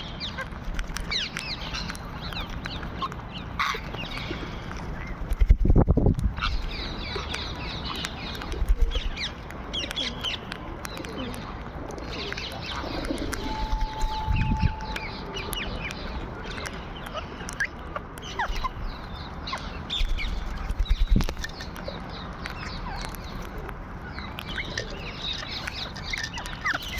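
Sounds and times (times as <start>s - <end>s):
parrots chirping and calling: 0.0s - 5.4s, 6.3s - 26.9s
short steady tone: 13.4s - 15.2s.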